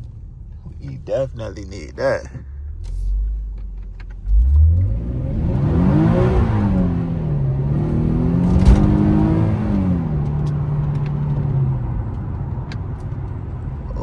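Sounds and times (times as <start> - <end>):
car engine revving: 4.0 - 13.1.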